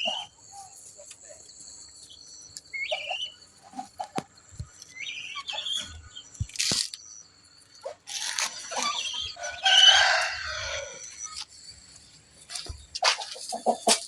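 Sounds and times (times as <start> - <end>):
chickens clucking: 0.0 - 1.4, 2.6 - 6.1, 7.8 - 11.5, 12.4 - 14.0
chicken drawn-out call: 7.8 - 11.4.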